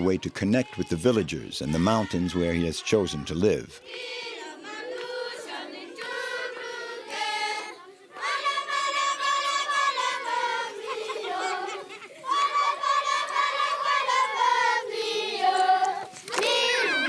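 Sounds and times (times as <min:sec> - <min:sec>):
children singing in unison: 0:00.2 - 0:17.0.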